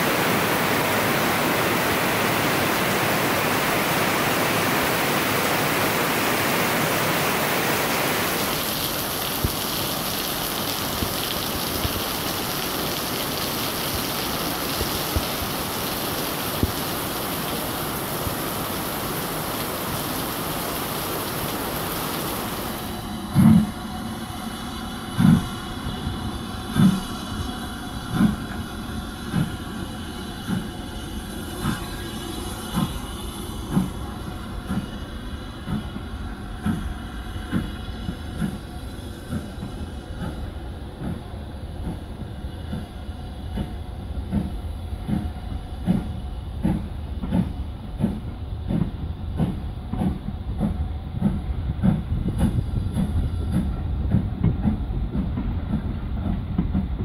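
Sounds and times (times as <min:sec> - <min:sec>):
steady hiss: 0:00.0 - 0:54.2
train pulling away with thumps: 0:00.0 - 0:57.0.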